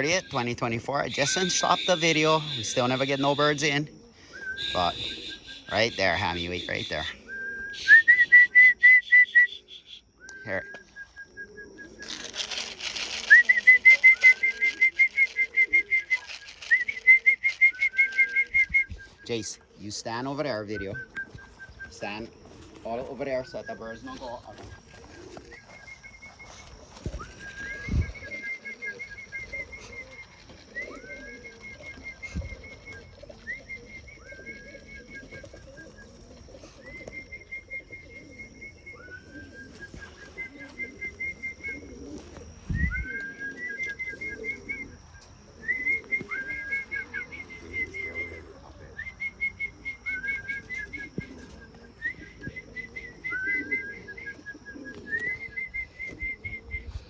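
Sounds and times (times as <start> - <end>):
trilled whistles: 0.0 - 57.0
pigeons flapping wings: 11.6 - 19.0, 24.0 - 44.7, 45.6 - 48.4.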